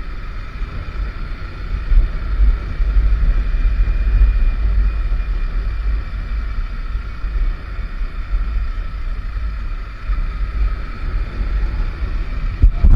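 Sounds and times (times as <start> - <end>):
motorcycle running: 0.0 - 12.9
wind buffeting microphone: 0.0 - 12.9.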